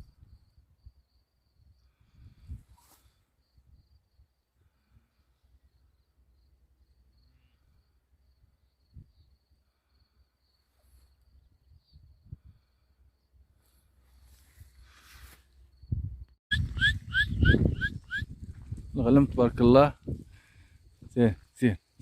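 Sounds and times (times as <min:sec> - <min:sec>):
low wind rumble: 0:15.7 - 0:21.4.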